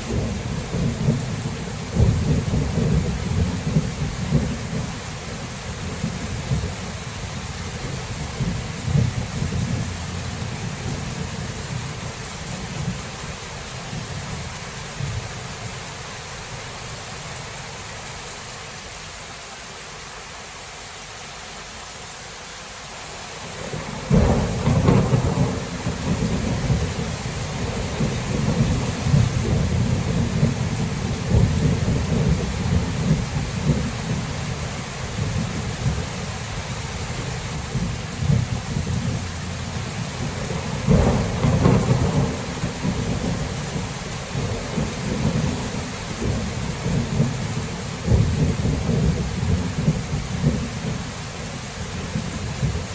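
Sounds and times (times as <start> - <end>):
thunder rumbling: 0.0 - 15.4, 23.6 - 52.9
rain hissing: 0.0 - 52.9
loud thunderclap: 0.1 - 4.9, 7.8 - 12.0, 23.6 - 34.3, 37.7 - 51.0.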